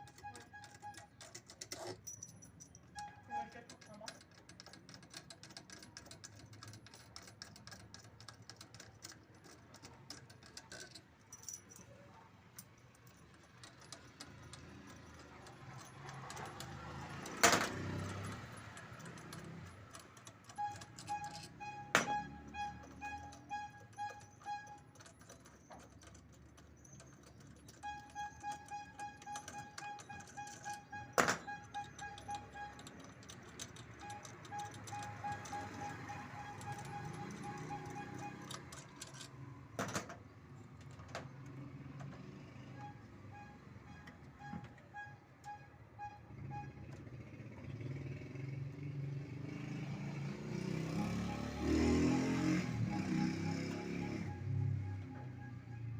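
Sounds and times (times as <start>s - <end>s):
metal tools clinking: 0.0s - 40.1s.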